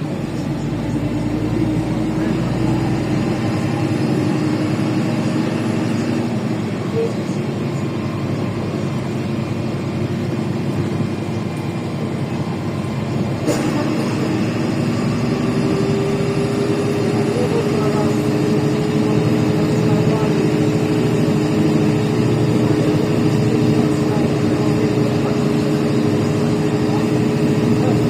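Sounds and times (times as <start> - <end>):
bus engine hum: 0.0 - 28.0
rising engine whine: 0.0 - 28.0.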